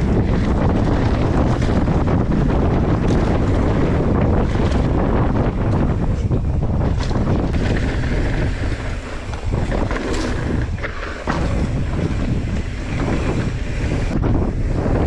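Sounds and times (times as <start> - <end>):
bike rattling over rough trail: 0.0 - 15.0
wind roaring on microphone: 0.0 - 15.0.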